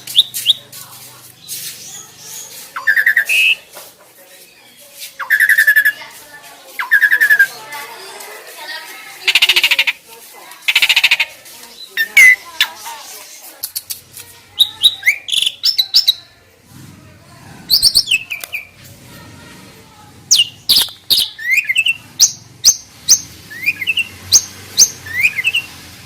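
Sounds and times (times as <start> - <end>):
starling whistles and chirps: 0.0 - 0.7, 1.4 - 3.7, 5.2 - 6.0, 20.3 - 25.8.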